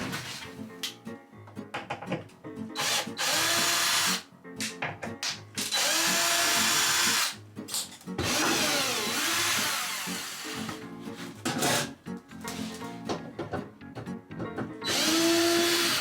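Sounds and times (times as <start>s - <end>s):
background music: 0.0s - 16.0s
power drill motor: 2.8s - 4.2s, 5.7s - 7.4s, 8.2s - 10.8s, 14.9s - 16.0s.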